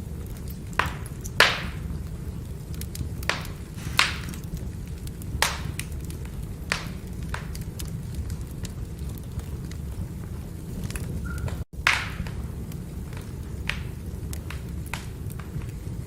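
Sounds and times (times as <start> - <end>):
firewood crackling and popping: 0.0 - 16.0
flames rumbling: 0.0 - 16.0.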